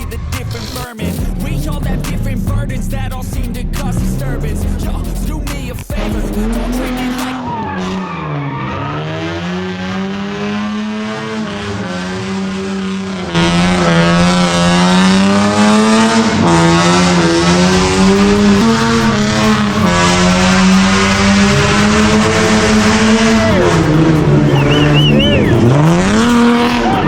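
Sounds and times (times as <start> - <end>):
car engine revving hard: 0.0 - 27.0
tyre squeal: 23.2 - 27.0.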